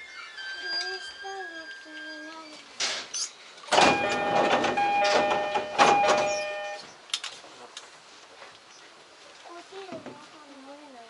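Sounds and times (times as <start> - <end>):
rail running sound: 0.0 - 2.8, 3.7 - 6.9.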